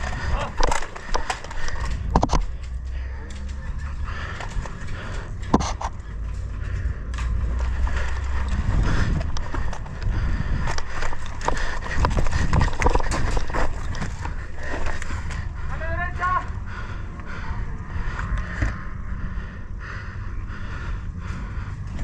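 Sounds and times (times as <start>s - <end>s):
gear knocks and clicks: 0.0s - 16.6s
low microphone rumble: 0.0s - 22.0s.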